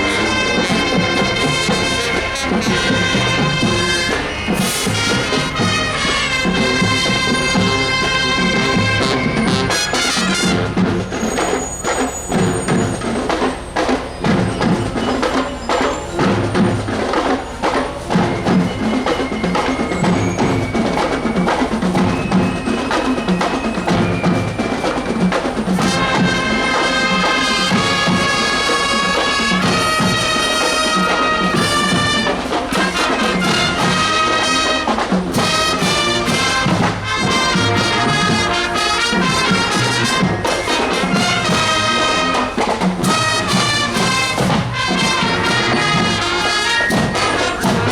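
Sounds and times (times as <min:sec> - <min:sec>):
brass section holding chords: 0:00.0 - 0:11.0, 0:25.6 - 0:47.9
marching band drums and percussion: 0:00.0 - 0:47.9.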